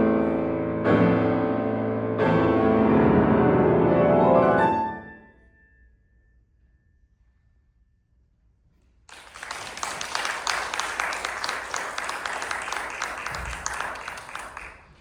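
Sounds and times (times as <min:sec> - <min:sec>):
audience applauding: 0:09.1 - 0:15.0.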